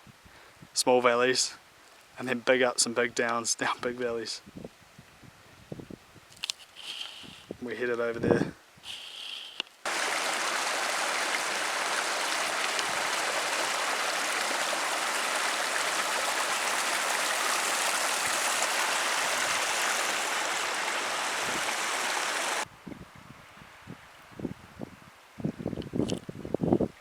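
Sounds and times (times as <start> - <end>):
flowing stream rushing: 9.9 - 22.6.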